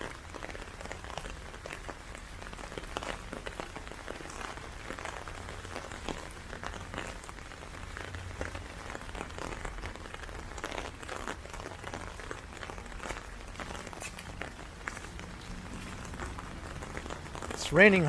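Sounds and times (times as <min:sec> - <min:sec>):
heavy rain with sharp drop taps: 0:00.0 - 0:18.0.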